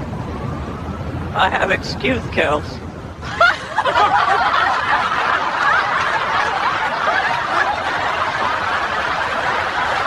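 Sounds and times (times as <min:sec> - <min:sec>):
group of people laughing: 0:03.2 - 0:10.0.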